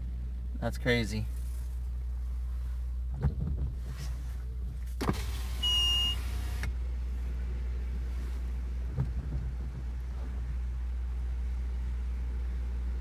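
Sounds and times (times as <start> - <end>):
car engine idling: 0.0 - 13.0
power window whirring: 5.0 - 6.8.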